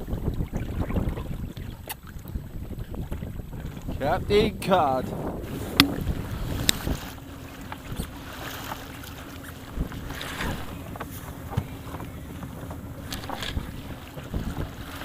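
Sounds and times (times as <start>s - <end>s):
water against inflatable boat: 0.0s - 15.0s
wind buffeting microphone: 0.0s - 15.0s
steady low hum: 3.9s - 15.0s
sharp knocks: 5.7s - 6.2s.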